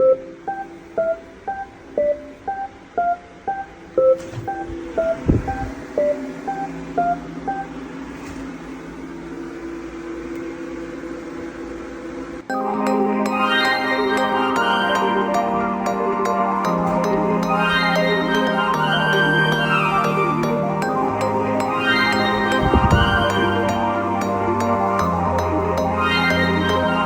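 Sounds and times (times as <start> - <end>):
washing machine beeping tune: 0.0 - 8.2, 12.5 - 27.0
steady low hum: 0.0 - 27.0
low thud: 4.2 - 5.8.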